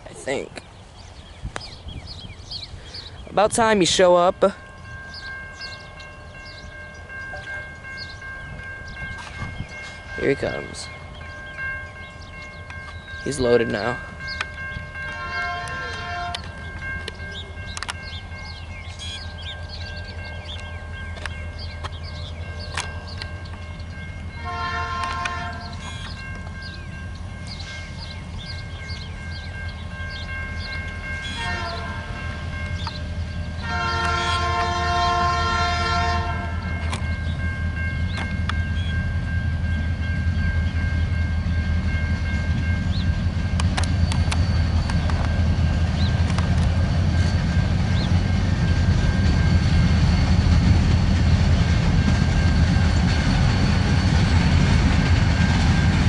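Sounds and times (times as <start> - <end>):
freight train rumble: 0.0 - 56.0
locomotive horn blasts: 15.1 - 16.5, 24.4 - 25.8, 31.3 - 32.2, 33.6 - 36.7.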